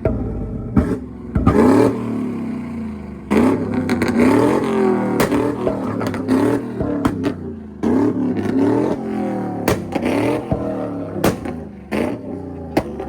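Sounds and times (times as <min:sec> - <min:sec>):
car engine revving: 0:00.0 - 0:13.0
sharp cracks: 0:03.3 - 0:07.4, 0:08.4 - 0:13.0.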